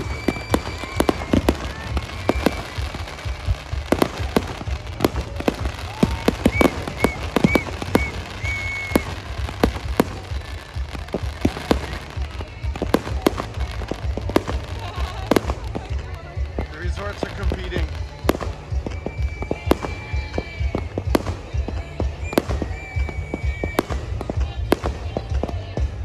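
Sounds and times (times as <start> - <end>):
firework whistles: 0.0 - 15.9, 16.6 - 25.6
fireworks bangs and crackles: 0.0 - 26.0
low rumble: 0.0 - 26.0.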